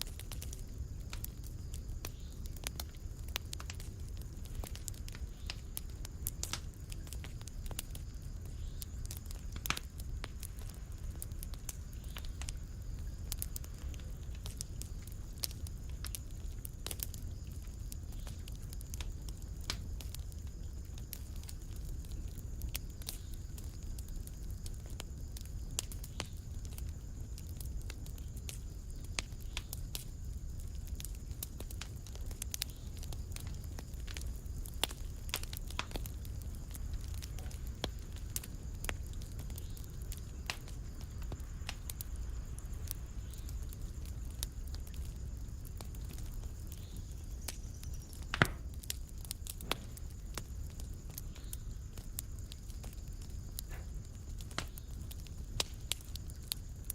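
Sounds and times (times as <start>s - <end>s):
low rumble of flames: 0.0s - 56.9s
wood fire crackling and popping: 0.0s - 56.9s.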